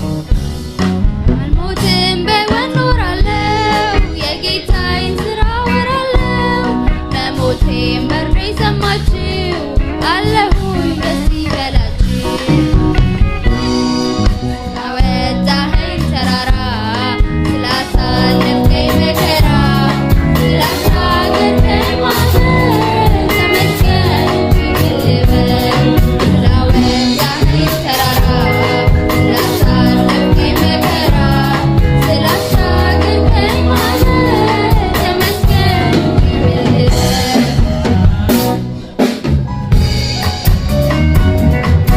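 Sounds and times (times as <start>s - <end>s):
band with steady beat: 0.0s - 41.9s
voices singing gospel song: 17.5s - 39.2s.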